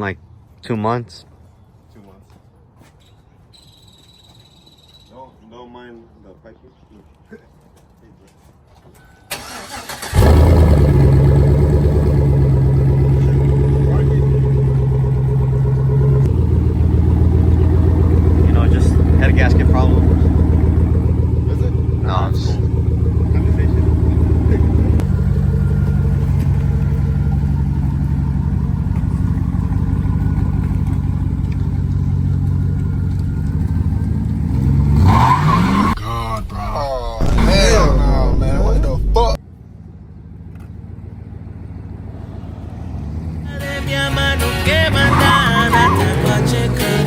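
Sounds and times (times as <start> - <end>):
truck engine idling: 9.4 - 47.0.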